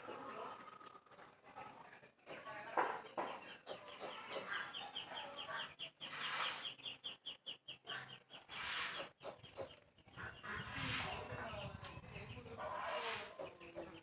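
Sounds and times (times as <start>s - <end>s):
birds peeping: 0.0s - 14.0s.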